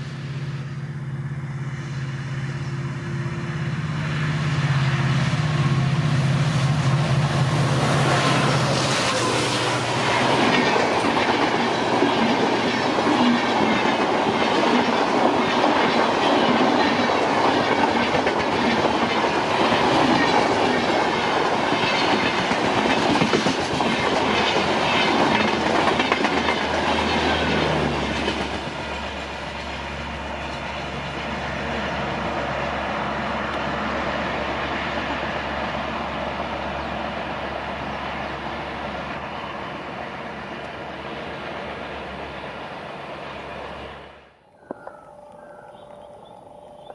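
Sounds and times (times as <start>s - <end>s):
train wheels clattering on rails: 5.0s - 32.5s.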